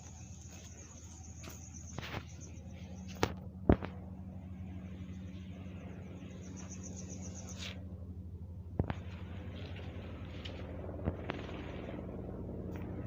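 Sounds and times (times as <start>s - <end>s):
high insect trill: 0.0s - 3.2s, 4.6s - 7.8s
helicopter rumble: 0.0s - 13.0s.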